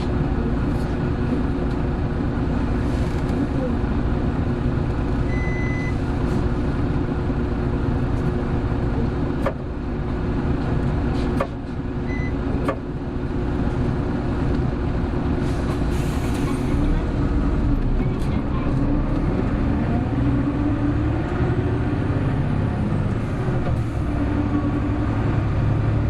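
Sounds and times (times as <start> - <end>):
bus engine drone: 0.0 - 26.0.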